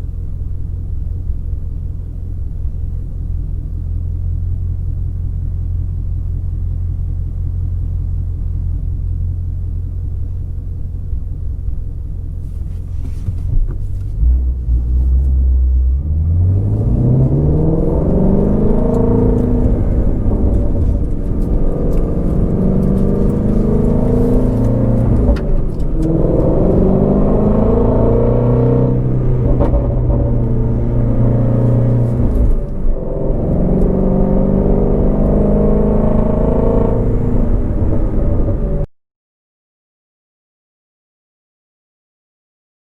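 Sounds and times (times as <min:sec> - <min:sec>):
car engine running: 0:00.0 - 0:38.8.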